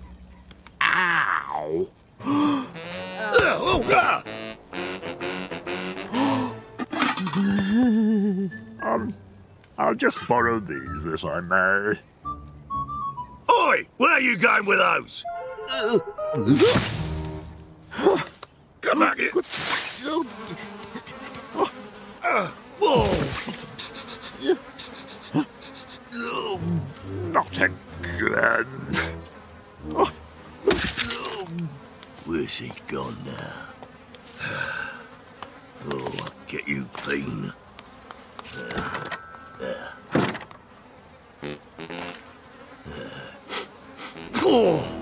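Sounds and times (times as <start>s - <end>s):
cartoon flies buzzing: 2.3s - 9.5s, 15.4s - 18.3s, 19.5s - 45.0s.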